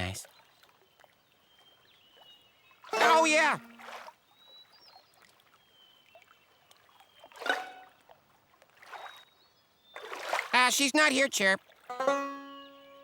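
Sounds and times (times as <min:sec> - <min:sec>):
cartoon water splash: 0:02.9 - 0:03.9.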